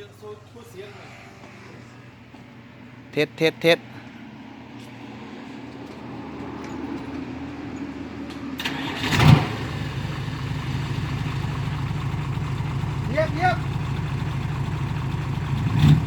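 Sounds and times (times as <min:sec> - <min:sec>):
car engine starting and idling: 0:05.4 - 0:16.0.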